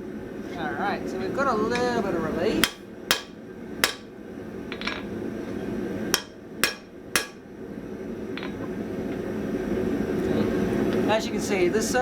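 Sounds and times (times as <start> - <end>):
hammer striking steel on anvil: 2.6 - 4.1, 6.1 - 7.4.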